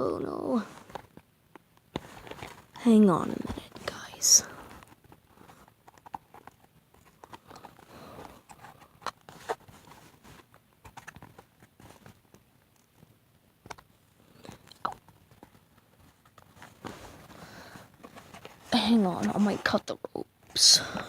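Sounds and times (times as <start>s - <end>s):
cardboard box handling: 16.0s - 19.8s.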